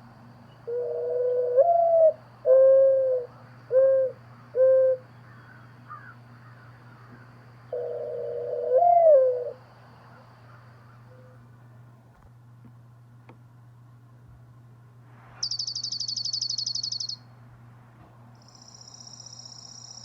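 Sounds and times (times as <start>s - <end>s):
bird hooting: 0.5s - 11.5s, 15.4s - 17.2s.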